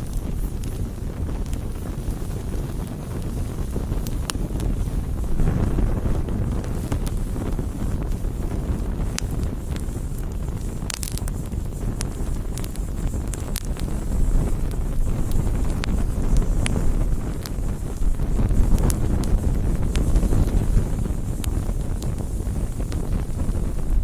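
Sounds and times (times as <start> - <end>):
fire low rumble: 0.0 - 24.0
wood crackling and popping: 0.0 - 24.0.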